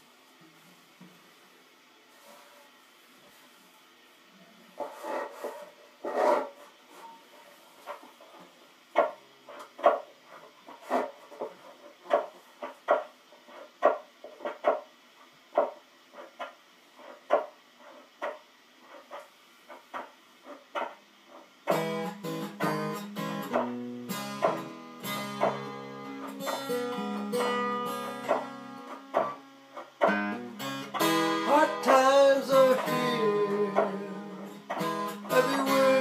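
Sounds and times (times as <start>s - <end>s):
guitar playing: 21.7s - 36.0s
stomp box tapped in a beat: 21.7s - 36.0s.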